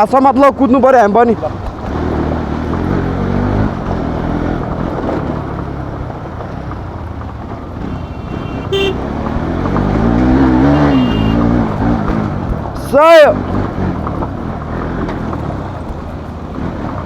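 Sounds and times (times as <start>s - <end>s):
wind and road noise: 0.0s - 17.0s
motorcycle engine running: 1.3s - 17.0s
horn toot: 7.8s - 9.2s, 10.4s - 11.6s.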